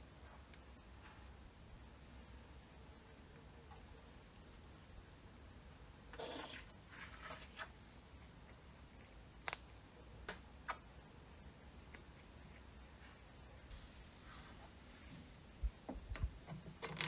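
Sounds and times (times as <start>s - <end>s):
scraping rubs: 6.2s - 7.8s.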